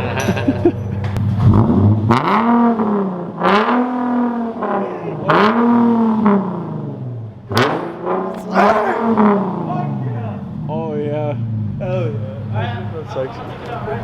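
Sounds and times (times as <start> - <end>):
loud car engine revving: 1.4 - 8.2.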